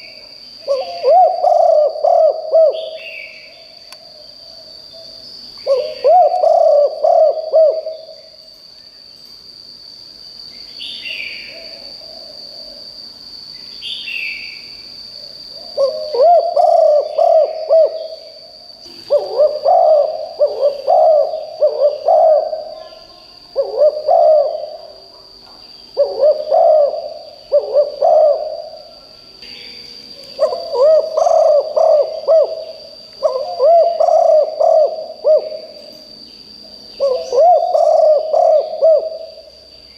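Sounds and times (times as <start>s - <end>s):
dove cooing: 0.0s - 3.4s, 5.6s - 8.2s, 15.6s - 29.1s, 30.4s - 35.9s, 37.0s - 39.6s
high bird calls: 25.6s - 36.0s.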